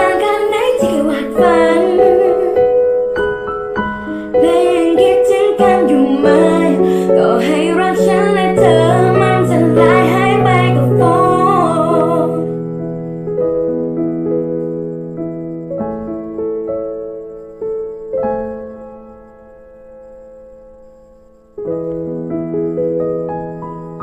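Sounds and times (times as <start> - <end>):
girl singing: 0.0 - 2.9, 4.3 - 12.6
piano accompaniment: 0.0 - 24.0.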